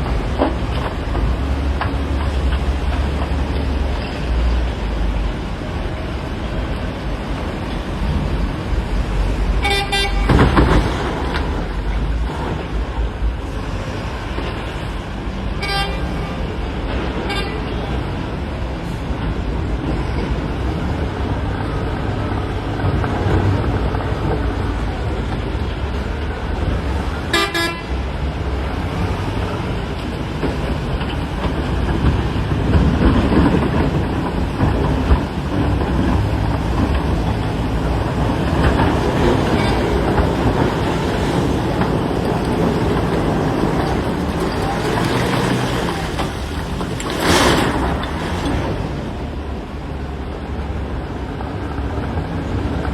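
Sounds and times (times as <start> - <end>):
wheel loader engine under load: 0.0 - 15.5, 27.9 - 52.9.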